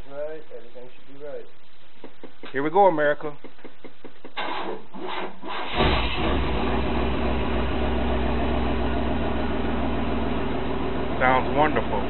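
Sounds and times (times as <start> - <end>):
engine cranking and idling: 5.4 - 12.0.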